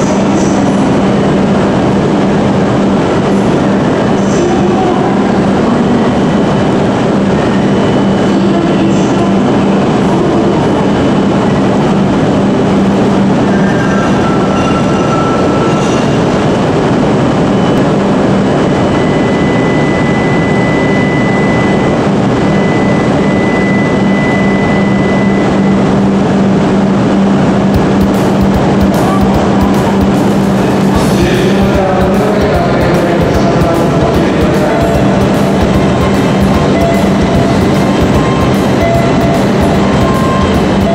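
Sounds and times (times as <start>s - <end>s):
train hum and whir: 0.0s - 40.9s
drumbeat: 27.7s - 40.9s.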